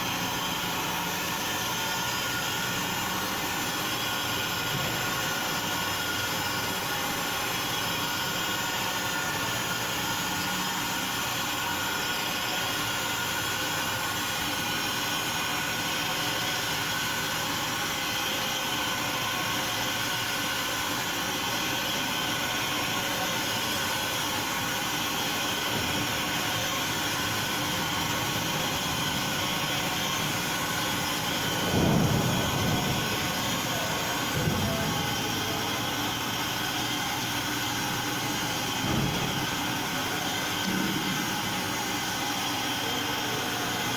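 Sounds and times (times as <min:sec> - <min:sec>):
machine tool running: 0:00.0 - 0:43.9.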